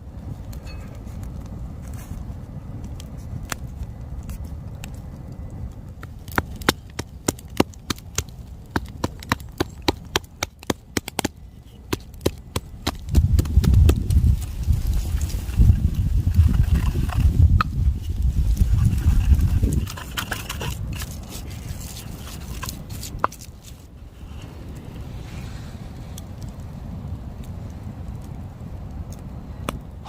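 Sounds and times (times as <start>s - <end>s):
steady low rumble: 0.0s - 30.0s
sharp wooden cracks and snaps: 2.8s - 15.4s, 19.6s - 23.9s.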